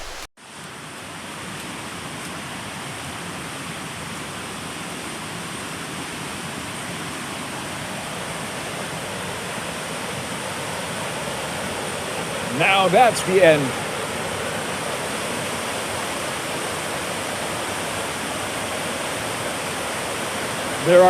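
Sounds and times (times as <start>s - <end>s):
waterfall rushing: 0.0s - 0.3s, 10.7s - 21.0s.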